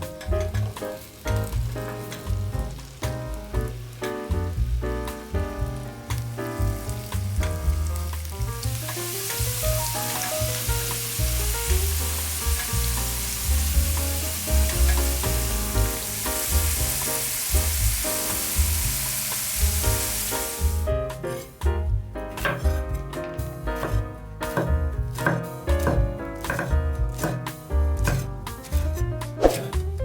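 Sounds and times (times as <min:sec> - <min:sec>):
food sizzling in oil: 0:00.0 - 0:21.7
background music with bass: 0:00.0 - 0:30.0
stirring in pan: 0:22.4 - 0:29.9.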